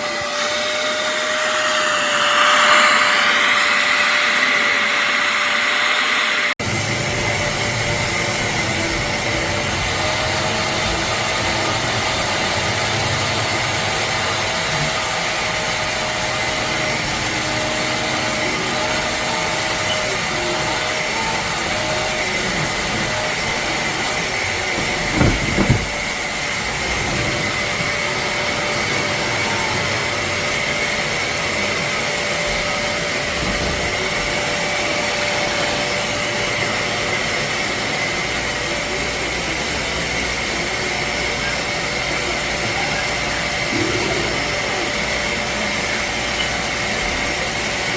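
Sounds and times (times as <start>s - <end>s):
spot cleaner motor suction: 0.0s - 47.9s.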